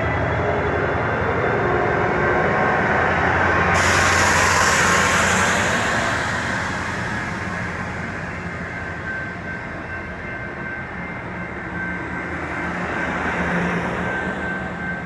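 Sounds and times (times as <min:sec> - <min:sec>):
train engine drone: 0:00.0 - 0:15.0
train wheel noise: 0:00.0 - 0:15.0
faint high whine: 0:01.3 - 0:10.4.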